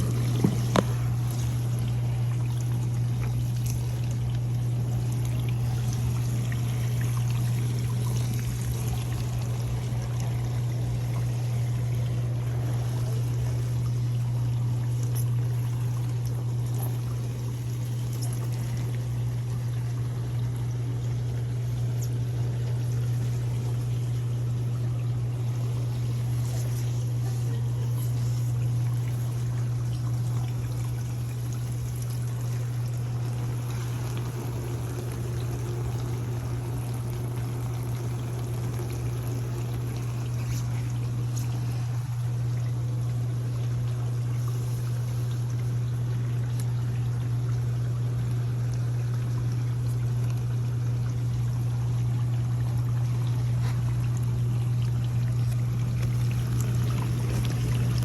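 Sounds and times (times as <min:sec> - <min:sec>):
water splashing and spraying: 0:00.0 - 0:21.0
dishwasher motor hum: 0:00.0 - 0:58.0.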